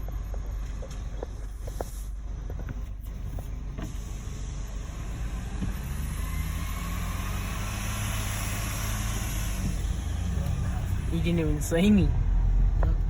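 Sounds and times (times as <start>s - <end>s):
rising whine: 3.0s - 12.6s.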